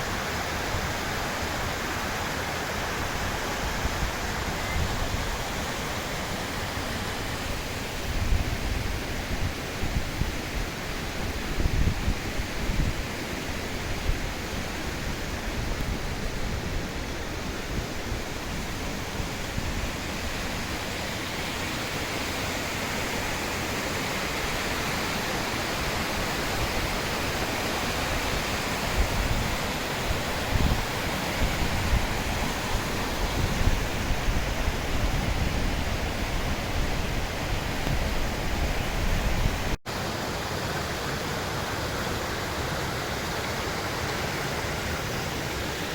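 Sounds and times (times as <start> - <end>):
waterfall rushing: 0.0 - 45.9
wind buffeting microphone: 28.0 - 39.8.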